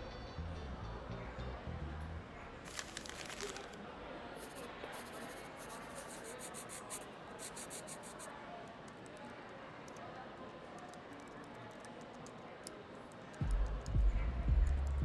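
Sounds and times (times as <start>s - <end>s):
murmur of voices: 0.0s - 15.0s
rustling scraping and clicking: 2.7s - 3.8s.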